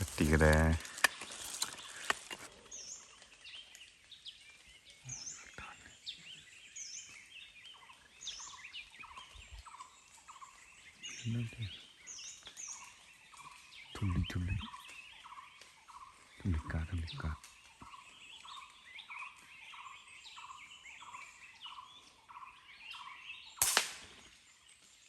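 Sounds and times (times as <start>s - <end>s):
forest birds chirping: 0.0s - 25.0s
rustle: 0.0s - 25.0s
low human voice: 11.2s - 11.8s, 14.0s - 14.7s.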